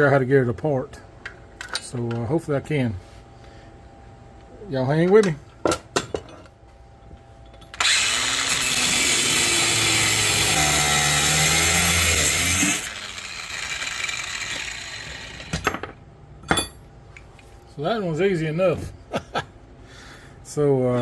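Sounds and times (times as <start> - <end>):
power tool cutting metal: 7.8 - 15.6.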